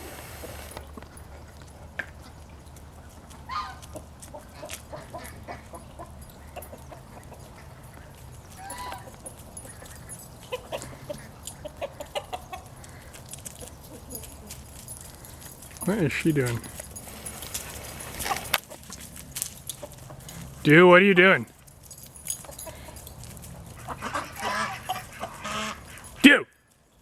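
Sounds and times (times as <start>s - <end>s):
chickens clucking: 10.5s - 12.8s.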